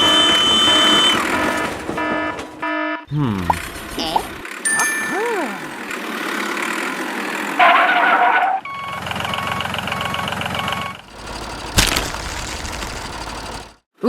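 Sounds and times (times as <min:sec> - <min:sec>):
short beeps: 0:00.0 - 0:01.2
vehicle engine: 0:05.5 - 0:13.9.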